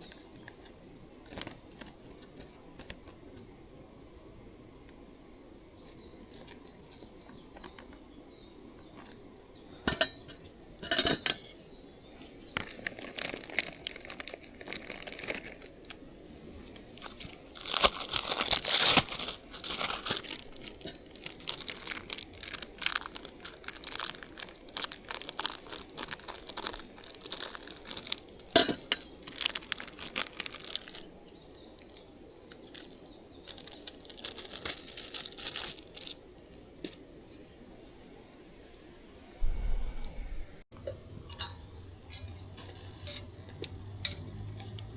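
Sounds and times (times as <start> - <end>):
wrapping crinkling and tearing: 12.6 - 37.0.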